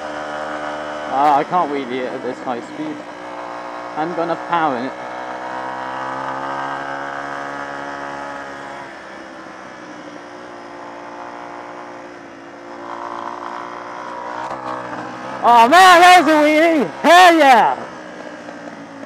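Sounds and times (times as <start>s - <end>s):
small motorcycle engine running: 0.0s - 19.0s.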